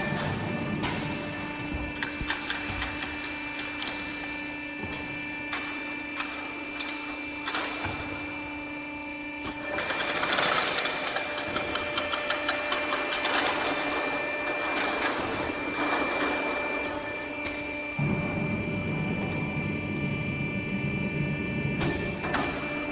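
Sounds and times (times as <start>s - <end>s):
strapping machine humming: 0.0s - 22.9s
rapid mechanical clicking: 2.0s - 4.2s, 9.4s - 16.5s.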